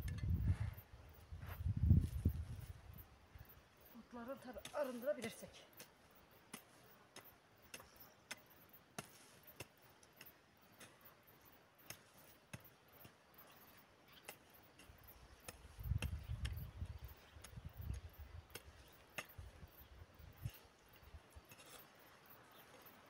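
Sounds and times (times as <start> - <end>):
hoe blade ticking in soil: 2.2 - 23.0.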